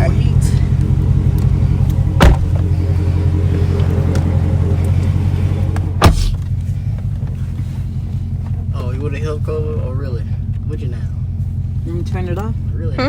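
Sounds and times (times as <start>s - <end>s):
car engine idling: 0.0s - 13.0s
sharp knock: 6.0s - 6.5s.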